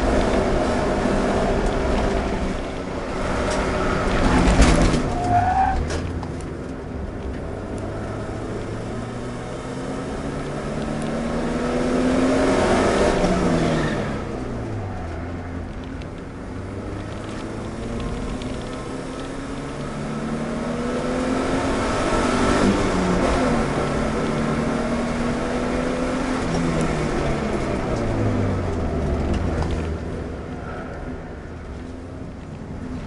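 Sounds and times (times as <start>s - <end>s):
car engine revving: 0.0s - 6.1s, 6.9s - 33.0s
short tyre squeal: 5.0s - 5.9s.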